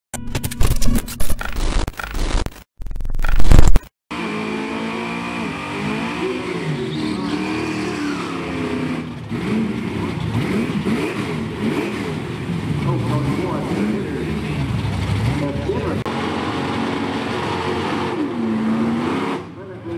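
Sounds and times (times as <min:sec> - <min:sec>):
drag racing engines revving: 0:04.1 - 0:19.9.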